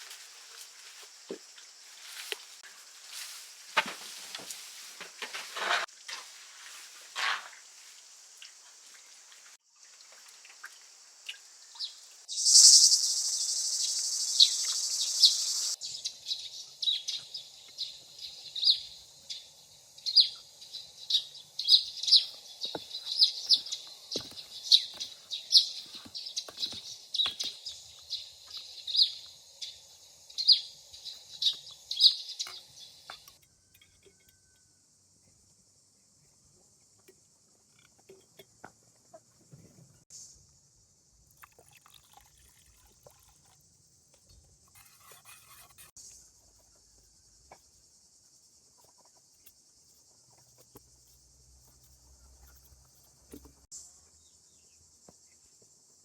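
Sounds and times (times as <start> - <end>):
high insect drone: 10.8 - 34.5
birds chirping: 11.8 - 33.4
loud hiss-like noise: 12.3 - 15.8.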